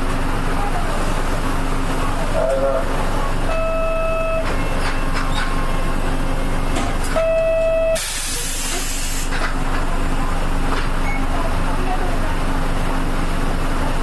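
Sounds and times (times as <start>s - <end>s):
bus diesel engine idling: 0.0s - 14.0s
compressed air hissing: 8.0s - 9.3s.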